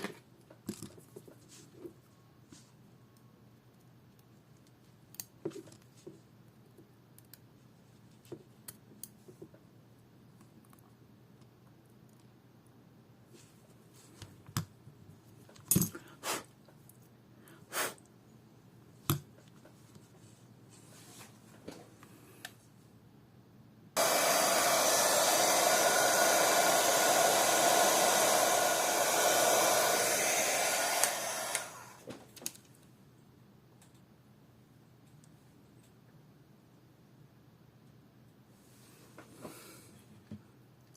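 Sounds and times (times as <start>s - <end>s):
hair dryer blower running: 24.0s - 32.1s.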